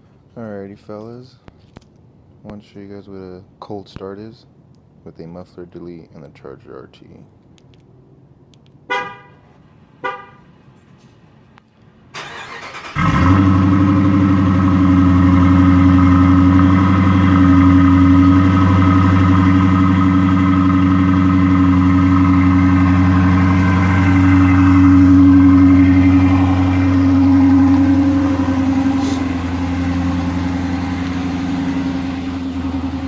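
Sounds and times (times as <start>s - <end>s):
car horn chirp: 8.9s - 10.5s
engine cranking and idling loudly: 12.2s - 33.0s.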